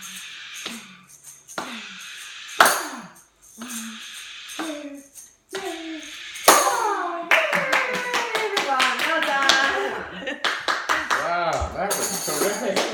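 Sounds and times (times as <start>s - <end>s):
tambourine shaken and struck: 0.0s - 9.9s, 11.5s - 12.9s.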